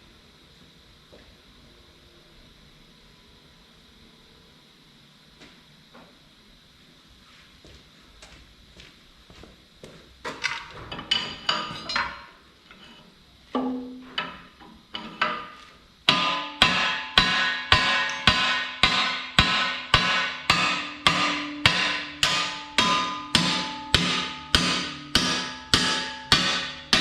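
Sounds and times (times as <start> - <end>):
hammer striking steel bar: 13.6 - 27.0.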